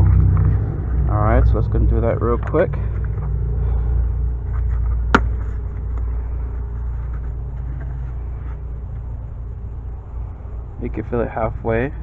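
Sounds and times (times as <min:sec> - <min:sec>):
low mechanical rumble: 0:00.0 - 0:12.0.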